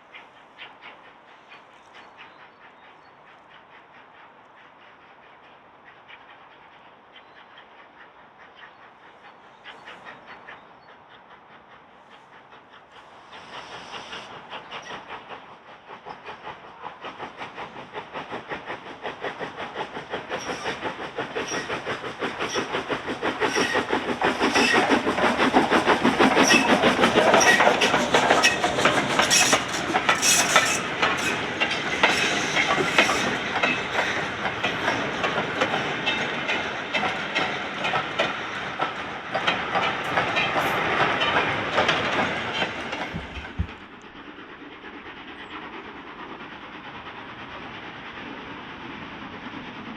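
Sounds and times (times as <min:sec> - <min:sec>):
train passing: 0:00.0 - 0:49.9
wheels clicking over rail joints: 0:17.1 - 0:44.1.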